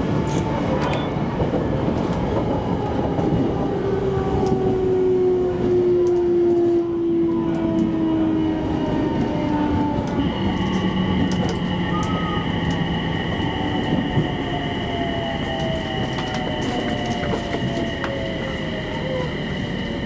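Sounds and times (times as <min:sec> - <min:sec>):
electric train running: 0:05.5 - 0:20.0.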